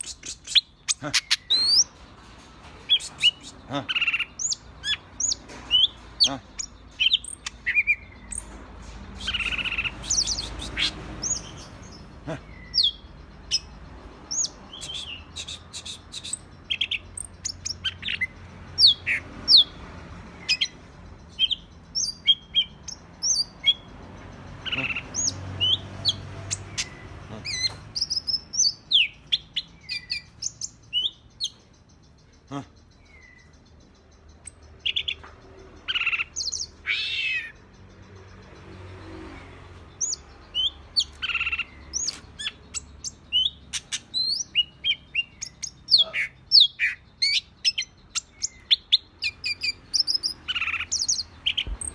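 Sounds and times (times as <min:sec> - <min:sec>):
bird singing chirps and whistles: 0:14.4 - 0:19.0.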